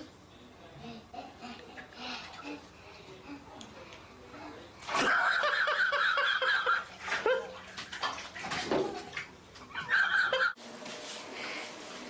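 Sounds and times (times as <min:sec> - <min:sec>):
bathwater splashing: 0:04.8 - 0:10.4.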